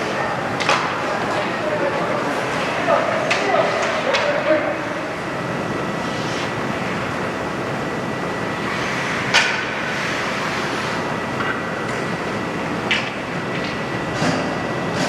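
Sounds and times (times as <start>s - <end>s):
ice rink noise: 8.6s - 11.6s.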